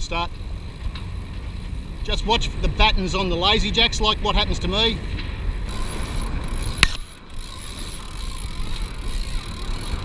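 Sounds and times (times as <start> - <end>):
wind: 0.0 - 10.0
winch ratchet cranking: 5.7 - 10.0.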